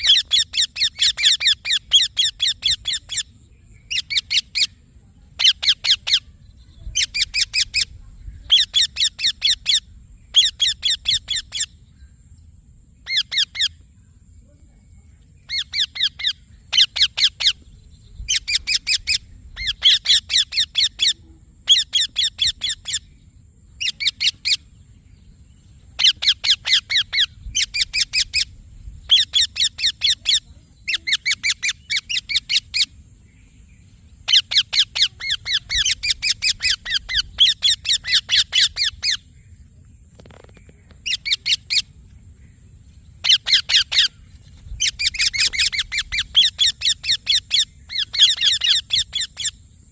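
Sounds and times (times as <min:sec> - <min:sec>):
parakeet shrill chattering: 0:00.0 - 0:03.3, 0:07.0 - 0:11.7, 0:13.1 - 0:13.7, 0:15.5 - 0:17.6, 0:18.3 - 0:23.0, 0:26.0 - 0:28.5, 0:29.1 - 0:32.9, 0:34.3 - 0:39.2, 0:41.0 - 0:41.9, 0:43.2 - 0:44.1, 0:44.8 - 0:49.6.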